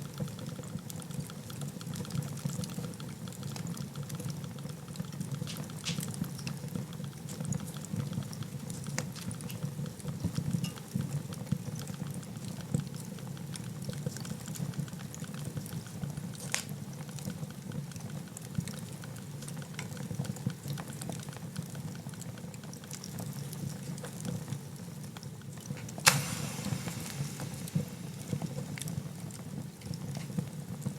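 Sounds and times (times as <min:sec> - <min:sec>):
wood fire crackling: 0:13.0 - 0:30.9.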